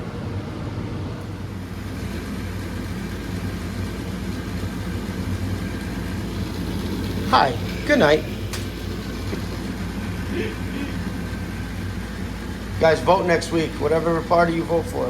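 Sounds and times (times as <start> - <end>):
furnace motor hum: 0.0 - 15.0.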